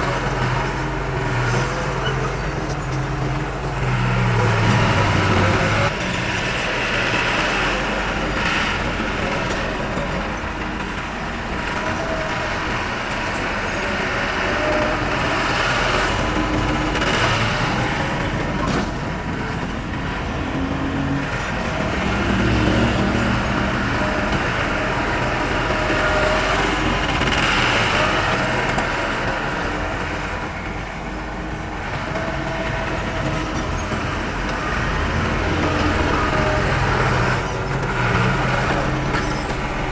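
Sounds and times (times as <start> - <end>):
diesel engine of heavy machinery: 0.0 - 39.9.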